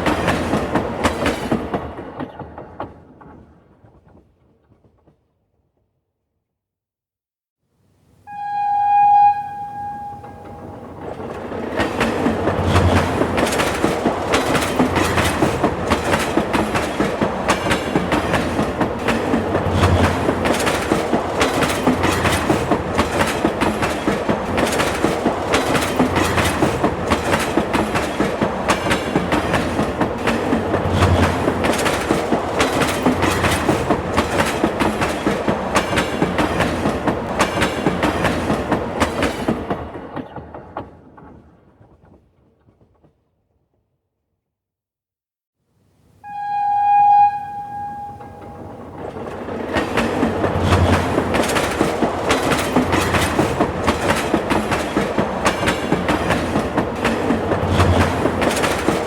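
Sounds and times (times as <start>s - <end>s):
train wheels clacking on rails: 0.0s - 4.2s, 9.8s - 43.1s, 47.6s - 59.0s
train horn: 8.3s - 11.0s, 46.2s - 49.0s.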